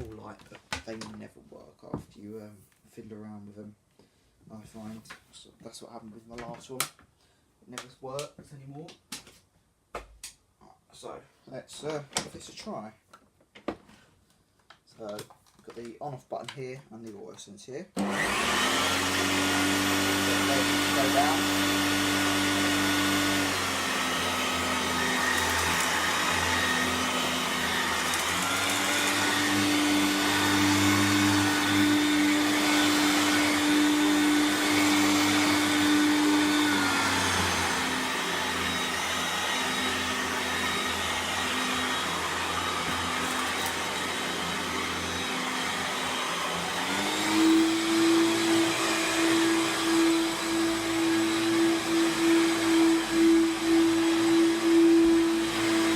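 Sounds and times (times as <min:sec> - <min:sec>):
upright vacuum cleaner running: 0:18.0 - 0:55.9.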